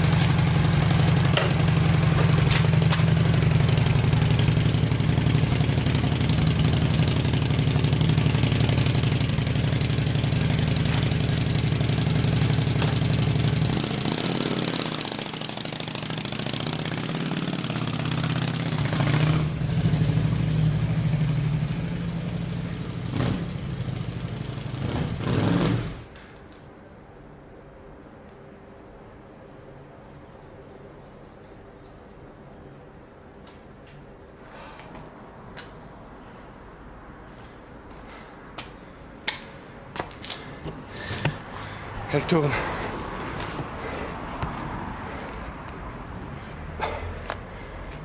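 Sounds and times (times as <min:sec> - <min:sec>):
motorcycle engine running: 0:00.0 - 0:26.1.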